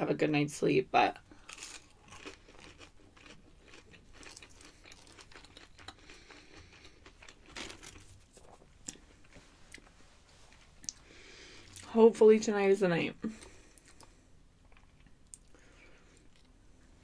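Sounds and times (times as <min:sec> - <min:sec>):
crunchy chewing: 0:01.4 - 0:09.9.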